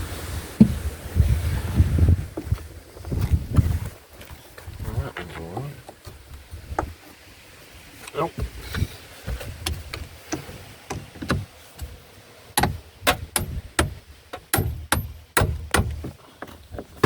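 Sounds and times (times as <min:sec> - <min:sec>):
sharp metallic clicks and knocks: 0:09.6 - 0:11.9, 0:12.6 - 0:16.2.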